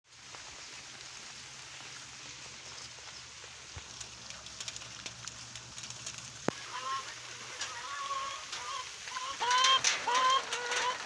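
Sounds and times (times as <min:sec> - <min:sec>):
rain on a roof: 0:00.0 - 0:11.0
raindrop ticks: 0:01.8 - 0:06.7.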